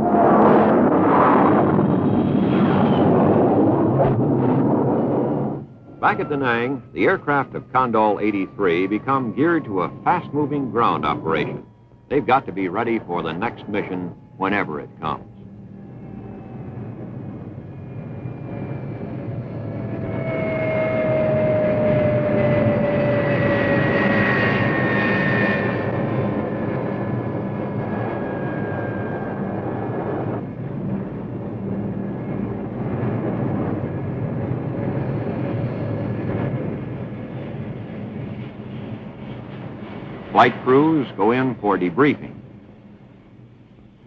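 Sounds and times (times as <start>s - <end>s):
high whine sliding down: 0.0s - 26.6s
jet engines roaring: 0.0s - 44.0s.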